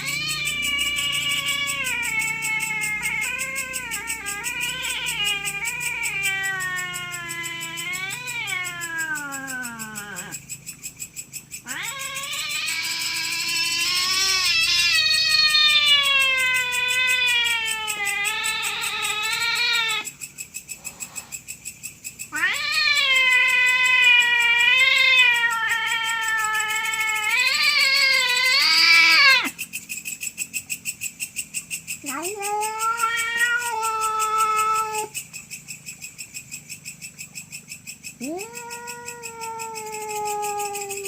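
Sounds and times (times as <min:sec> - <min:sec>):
cats yowling: 0:00.0 - 0:10.4, 0:11.6 - 0:20.2, 0:22.3 - 0:29.6, 0:32.0 - 0:35.2, 0:38.2 - 0:41.0.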